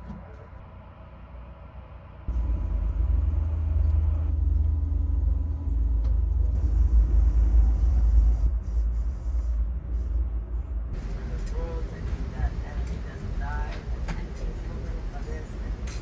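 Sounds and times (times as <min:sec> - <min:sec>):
train rumbling on board: 0:00.0 - 0:16.0.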